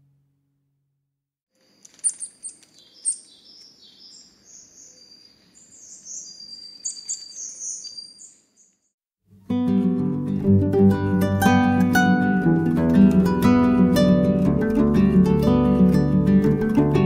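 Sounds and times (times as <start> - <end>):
songbirds chirping and singing: 2.1 - 8.8.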